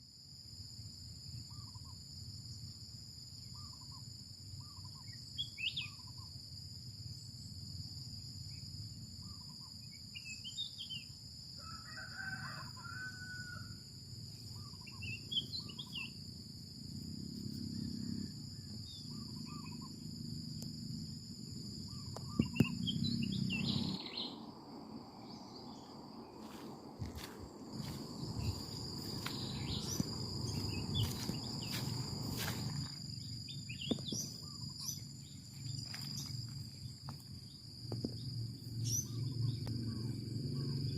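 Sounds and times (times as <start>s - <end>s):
high-pitched insect drone: 0.0s - 40.9s
rooster crowing: 11.6s - 13.9s
small birds chirping: 14.5s - 16.2s, 21.9s - 24.4s, 28.2s - 40.9s.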